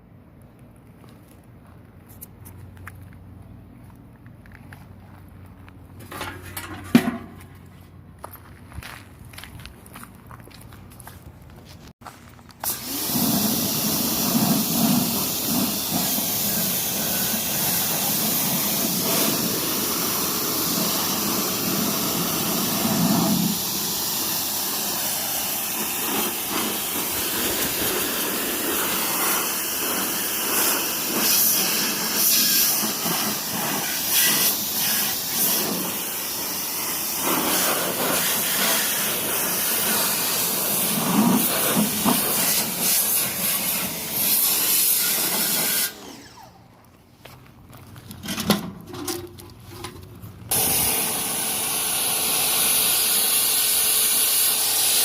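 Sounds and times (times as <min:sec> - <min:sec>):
pressure washer jet spraying: 0:12.6 - 0:46.2, 0:50.5 - 0:55.0.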